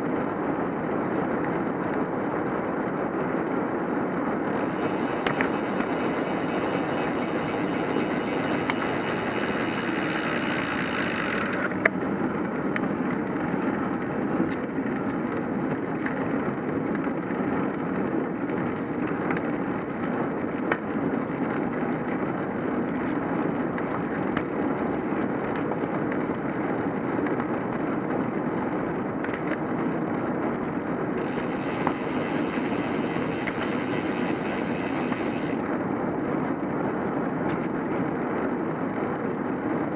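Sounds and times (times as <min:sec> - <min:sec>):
bicycle tyres rolling on road: 0:00.0 - 0:39.9
wind on microphone: 0:00.0 - 0:39.9
faint clicks and knocks: 0:04.5 - 0:07.4.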